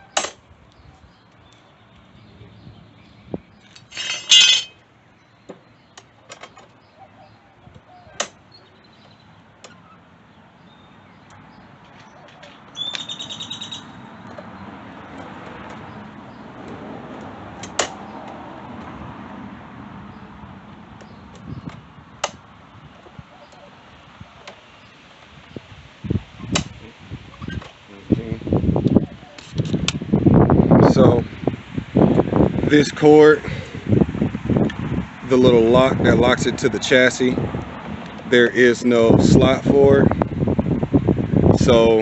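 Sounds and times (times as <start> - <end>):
tools and metal parts clicking: 3.7 - 4.8.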